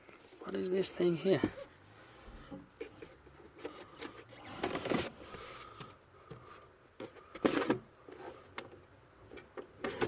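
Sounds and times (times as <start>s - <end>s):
hands handling battery parts: 2.6s - 10.0s.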